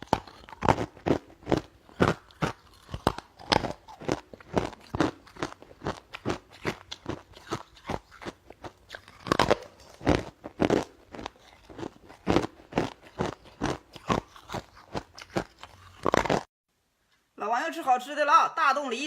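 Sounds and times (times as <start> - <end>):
person chewing crunchy food: 0.0 - 16.5.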